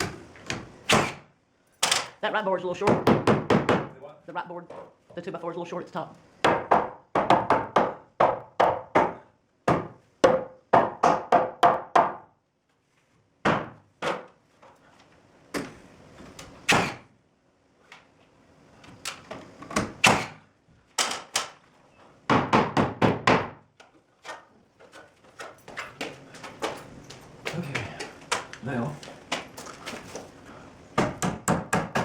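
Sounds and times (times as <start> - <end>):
hammer knocking on wood: 2.8 - 3.9, 6.4 - 12.2, 22.3 - 23.6, 31.0 - 32.0.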